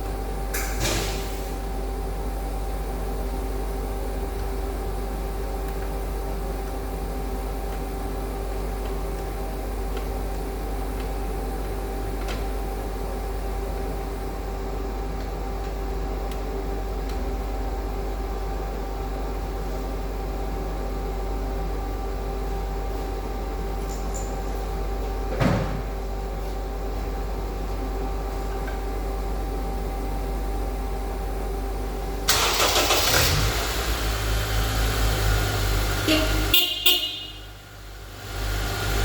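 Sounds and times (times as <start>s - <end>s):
machine hum: 31.8s - 39.0s.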